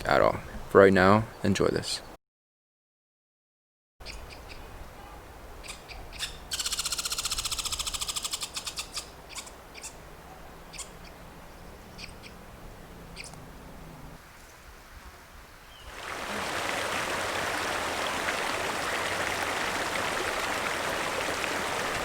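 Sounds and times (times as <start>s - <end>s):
birds chirping: 5.6s - 14.2s.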